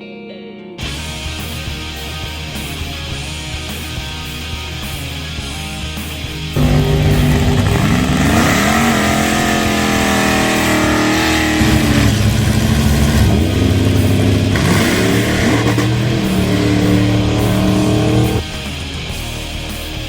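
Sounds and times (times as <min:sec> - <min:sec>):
drag racing car engine revving: 0:06.6 - 0:18.4.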